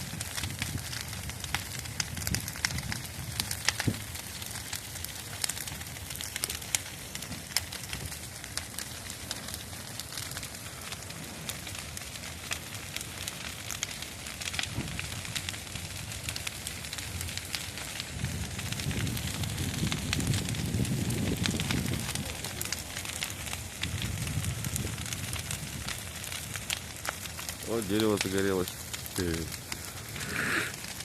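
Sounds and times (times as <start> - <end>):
bonfire crackling and popping: 0.0 - 31.0
low rumble of fire: 0.0 - 31.0.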